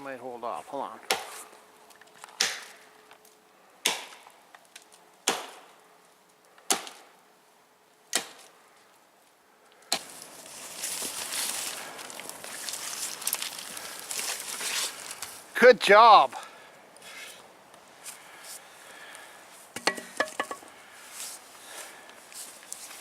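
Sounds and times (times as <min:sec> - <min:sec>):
axe chopping wood: 0:01.1 - 0:01.3, 0:02.4 - 0:02.7, 0:03.8 - 0:04.2, 0:05.2 - 0:05.7, 0:06.7 - 0:07.1, 0:08.1 - 0:08.5, 0:19.8 - 0:20.6.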